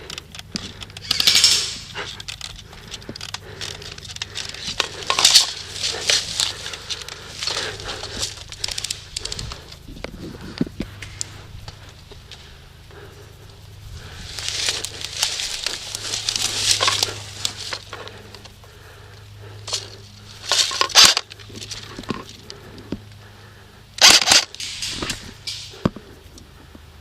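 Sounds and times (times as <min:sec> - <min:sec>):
sharp clicks: 0:00.0 - 0:18.7
rustling and crunching: 0:00.0 - 0:26.8.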